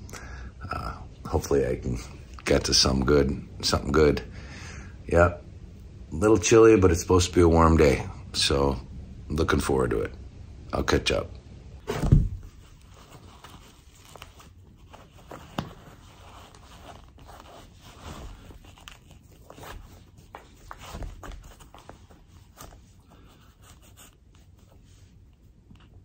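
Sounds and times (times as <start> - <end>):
rustling and scraping of gear: 11.9 - 25.2.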